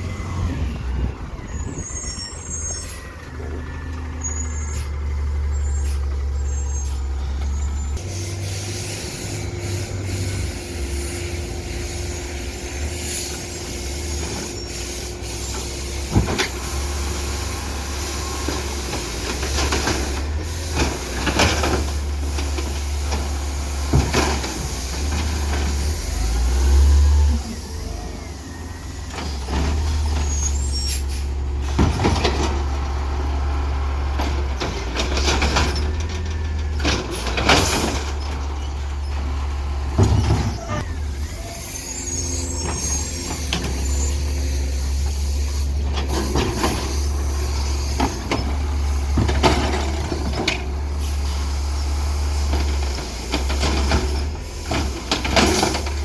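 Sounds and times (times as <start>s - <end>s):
garbage truck engine rumbling: 0.0s - 56.0s.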